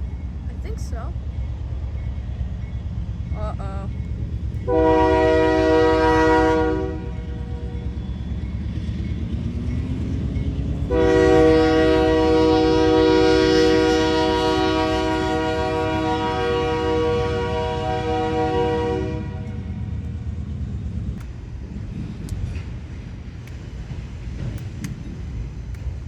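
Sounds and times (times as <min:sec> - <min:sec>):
train rumble: 0:00.0 - 0:26.0
locomotive air horn: 0:04.6 - 0:07.6, 0:10.9 - 0:19.7.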